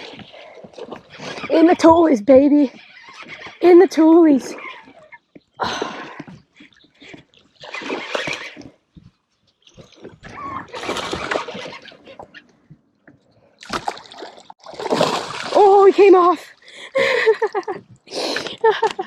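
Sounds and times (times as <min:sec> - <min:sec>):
fish splashing at water surface: 0:13.6 - 0:16.3.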